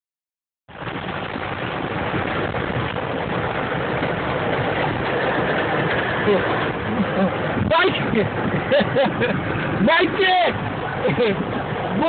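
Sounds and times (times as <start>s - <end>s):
rushing floodwater roar: 0.7s - 12.0s.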